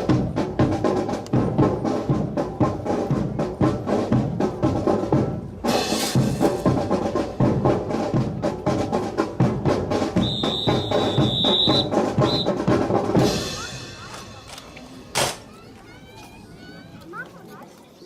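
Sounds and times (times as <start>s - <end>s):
bass drums beating: 0.0s - 14.1s
marching snare drums: 0.0s - 15.3s
high whistle blowing: 10.2s - 12.6s.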